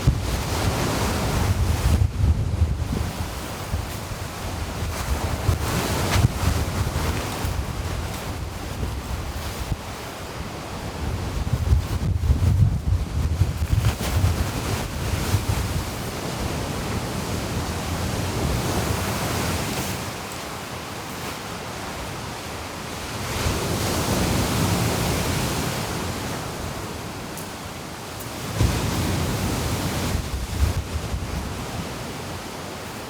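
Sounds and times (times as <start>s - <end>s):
wind buffeting microphone: 0.0s - 20.0s, 28.5s - 32.2s
sea waves washing onto shore: 0.0s - 33.0s.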